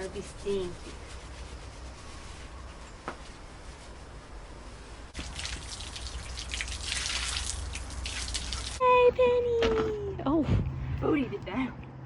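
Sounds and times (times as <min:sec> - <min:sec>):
water spraying and splashing: 0:05.1 - 0:08.8.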